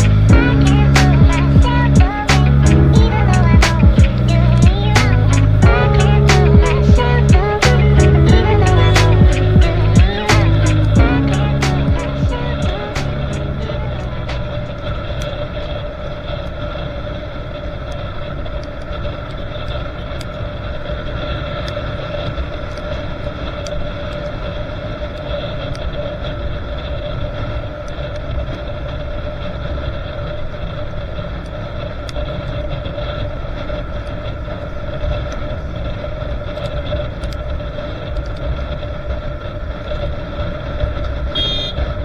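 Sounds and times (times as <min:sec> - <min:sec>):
motorcycle engine cruising: 0:00.0 - 0:15.7
wind noise on microphone: 0:00.0 - 0:42.0.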